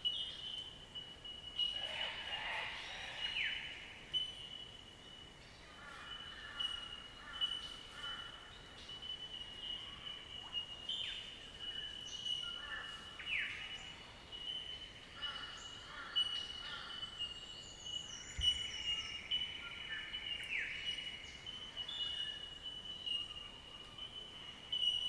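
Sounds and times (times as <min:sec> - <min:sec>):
birds calling: 0:00.0 - 0:25.0.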